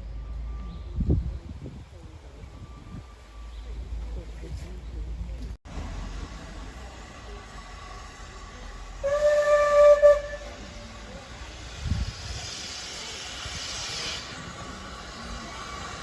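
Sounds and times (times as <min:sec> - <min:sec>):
steam hissing: 0:06.7 - 0:16.0
steam locomotive whistle: 0:09.0 - 0:11.0.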